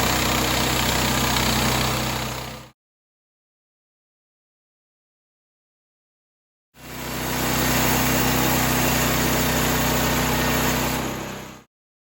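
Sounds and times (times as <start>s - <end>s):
sawmill engine running: 0.0s - 2.7s, 6.8s - 11.7s.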